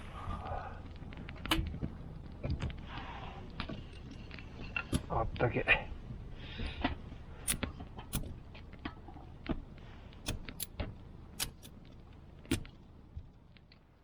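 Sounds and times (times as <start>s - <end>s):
low steady rumble: 0.0s - 14.0s
sharp clicks and knocks: 1.1s - 5.4s, 6.6s - 13.9s.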